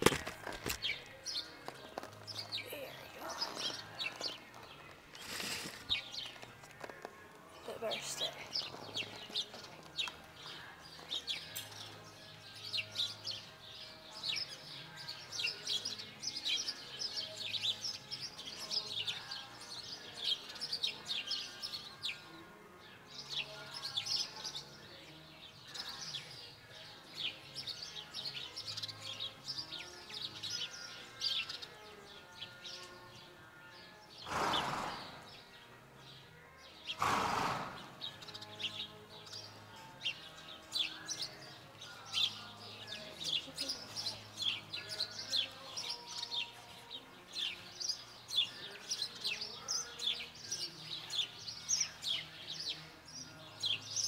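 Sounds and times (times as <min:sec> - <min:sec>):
small birds chirping: 0:00.1 - 0:54.0.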